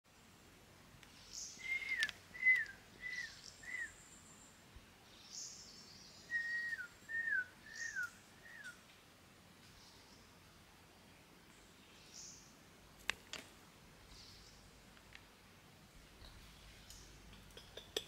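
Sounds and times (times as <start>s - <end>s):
bird whistling clear notes: 1.6s - 3.9s, 6.3s - 8.8s.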